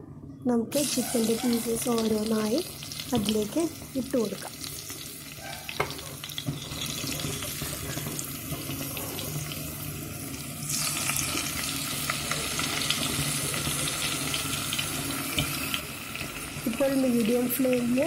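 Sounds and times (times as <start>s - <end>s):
chicken sizzling in a pan: 0.8s - 18.0s.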